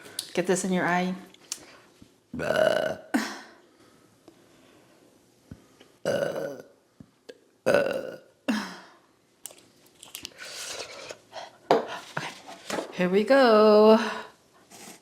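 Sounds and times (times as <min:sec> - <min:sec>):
woman burping: 0:02.4 - 0:03.6, 0:06.1 - 0:06.8, 0:07.6 - 0:09.0.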